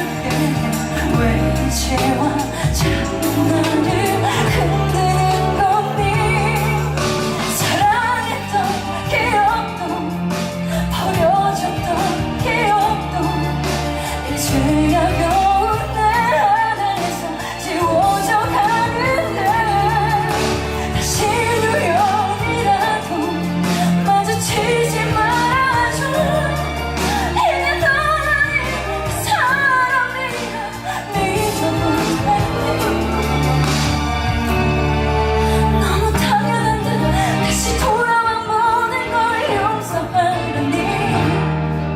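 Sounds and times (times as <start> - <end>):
woman singing: 0.0 - 34.6, 35.4 - 41.9
instrumental accompaniment with bass: 0.0 - 41.9.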